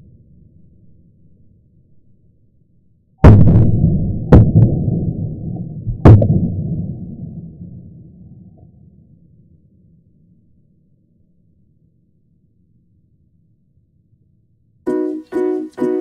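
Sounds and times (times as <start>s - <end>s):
low rumble: 0.0s - 13.8s
firecracker bangs: 3.2s - 5.0s.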